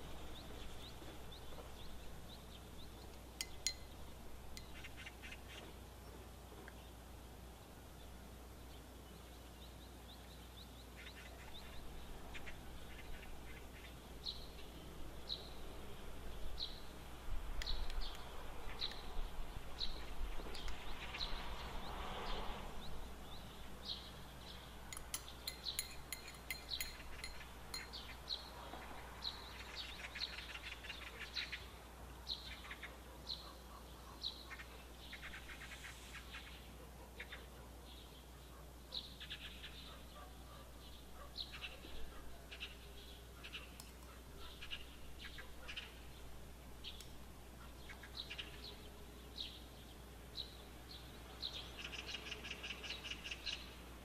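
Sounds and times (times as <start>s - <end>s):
small bird chirping: 0.2s - 7.0s, 17.6s - 31.7s
spoon clicking against glass: 3.4s - 4.0s, 20.5s - 20.8s, 24.9s - 28.0s.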